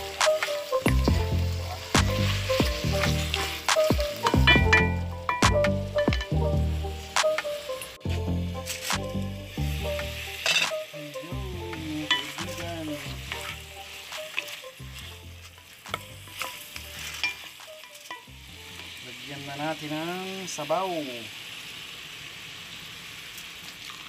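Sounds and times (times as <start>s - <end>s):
food sizzling in a pot: 0.0s - 24.0s
wooden spoon scraping a pot: 12.0s - 13.6s, 16.4s - 18.2s.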